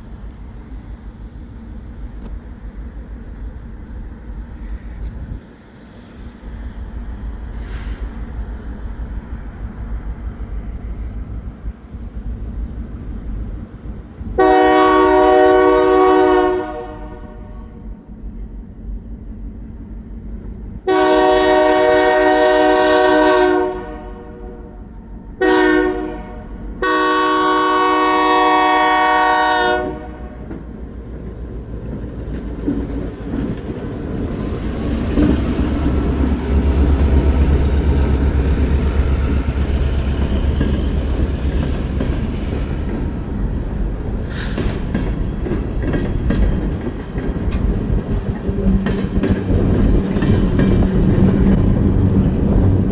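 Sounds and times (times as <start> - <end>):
clickety-clack of rail cars: 0.0 - 52.9
locomotive horn blasts: 14.4 - 17.8, 20.9 - 24.8, 25.4 - 30.5
low engine rumble: 29.7 - 44.3.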